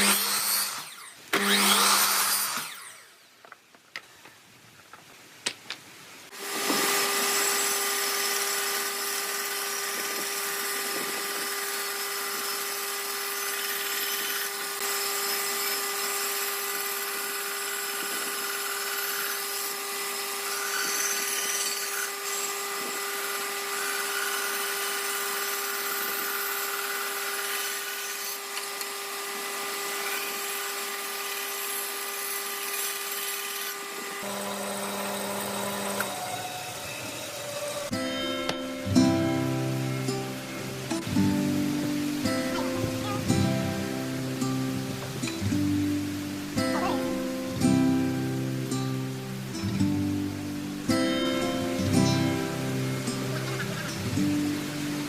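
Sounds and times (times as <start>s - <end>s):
power tool motor whine: 0.0s - 3.2s, 6.3s - 45.7s
rough wood cutting noise: 0.0s - 3.3s, 6.3s - 55.0s.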